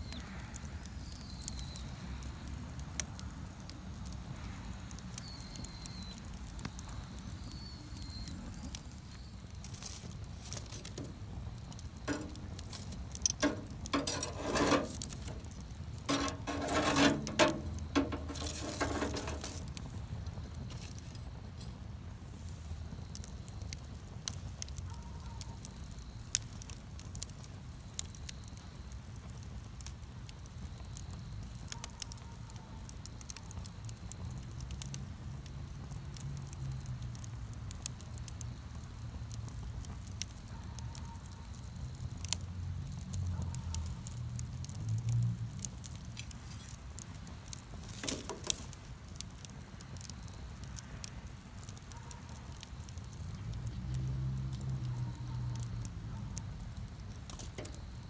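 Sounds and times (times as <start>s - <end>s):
wood bonfire crackling: 0.0s - 58.0s
sharp pops and snaps: 41.2s - 58.0s.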